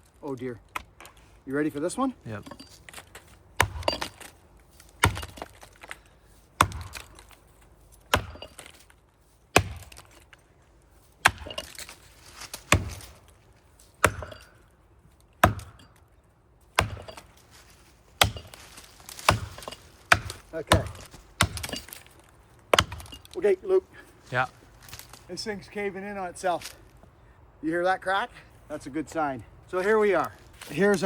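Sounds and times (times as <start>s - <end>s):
axe chopping into tree trunk: 2.9s - 6.0s, 6.6s - 7.4s, 8.1s - 8.9s, 9.5s - 10.2s, 11.2s - 13.3s, 14.0s - 14.6s, 15.4s - 16.1s, 16.7s - 17.4s, 18.2s - 22.1s, 22.7s - 23.3s.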